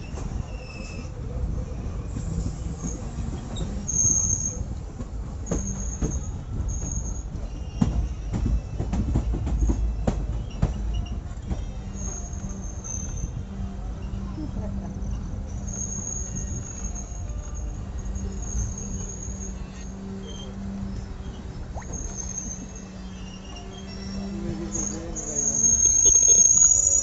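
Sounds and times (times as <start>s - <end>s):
train rumbling on track: 0.0s - 27.0s
wheel squeals: 0.0s - 27.0s.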